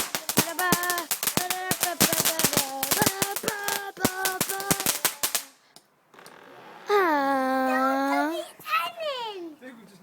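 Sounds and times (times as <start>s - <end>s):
firework whistling: 0.0s - 5.6s
firework crackling bangs: 0.0s - 6.9s.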